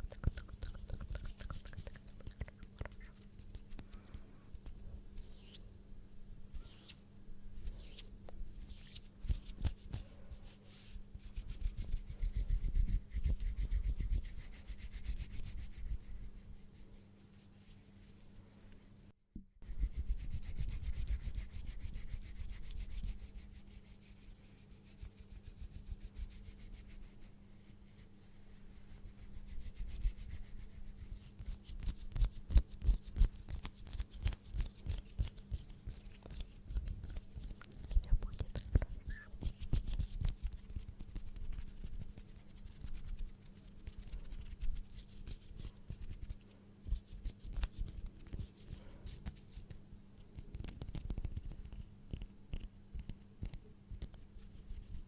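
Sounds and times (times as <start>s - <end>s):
hands rubbing: 0.0s - 5.6s.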